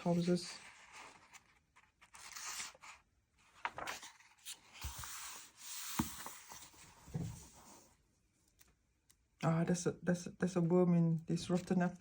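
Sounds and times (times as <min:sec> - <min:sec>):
magazine pages rustling: 0:00.0 - 0:07.6
paper crinkle: 0:00.1 - 0:05.4.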